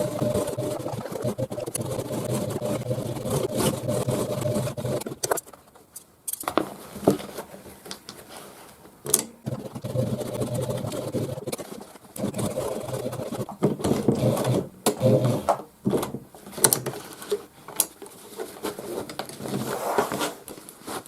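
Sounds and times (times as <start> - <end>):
sewing machine running: 0.0 - 5.2, 9.4 - 15.6.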